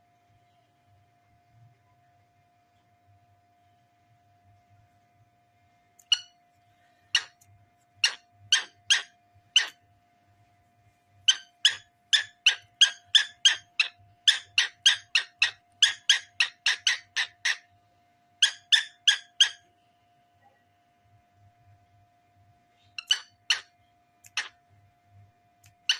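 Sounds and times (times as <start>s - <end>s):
cockatiel chirping: 7.1s - 7.4s, 8.0s - 9.8s, 11.3s - 17.7s, 18.4s - 19.6s, 23.0s - 24.6s, 25.6s - 25.9s.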